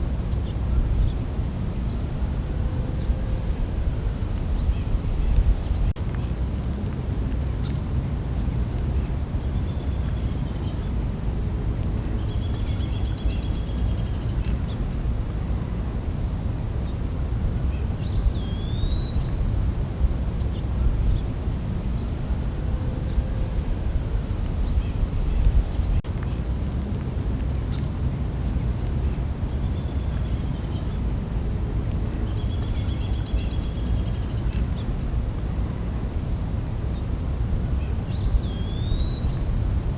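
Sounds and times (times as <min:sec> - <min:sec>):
steady low rumble: 0:00.0 - 0:07.0, 0:19.1 - 0:26.7
crickets chirping: 0:00.0 - 0:39.9
insects buzzing: 0:00.0 - 0:39.9
long high insect calls: 0:09.4 - 0:26.4, 0:29.4 - 0:39.9.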